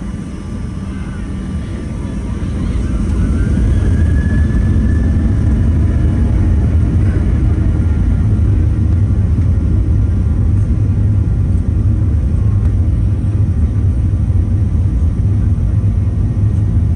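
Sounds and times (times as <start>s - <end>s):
faint rising whine: 0.0s - 14.8s
aircraft cabin engine rumble: 0.0s - 16.9s.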